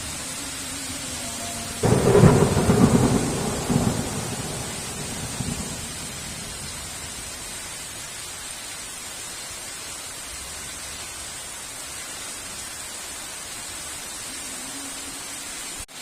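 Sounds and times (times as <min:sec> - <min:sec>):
heavy rain: 0:00.0 - 0:16.0
thunderclap cracking and rumbling: 0:01.8 - 0:07.8.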